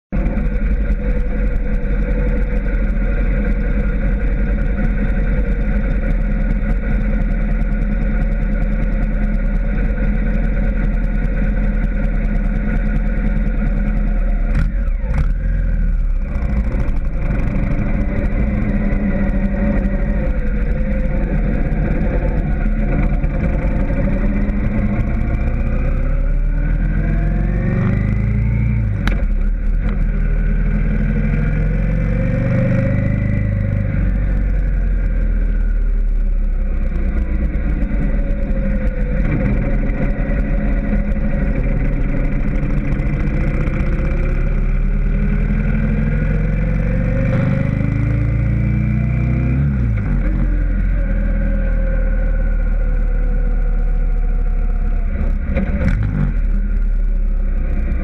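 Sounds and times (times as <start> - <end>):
motorcycle engine running: 0.1 - 58.0.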